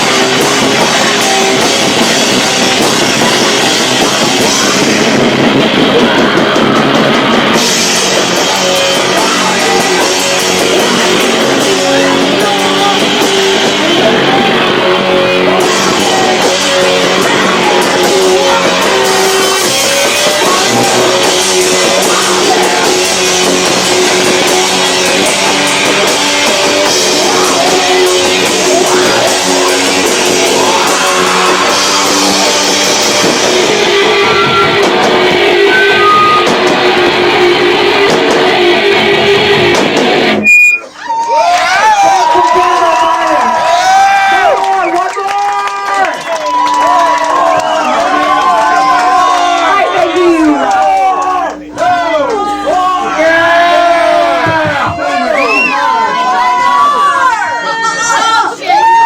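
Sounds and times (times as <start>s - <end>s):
electric guitars: 0.0s - 45.0s
distorted live rock band: 0.0s - 59.0s
drums: 0.0s - 59.0s
person singing: 8.2s - 33.3s.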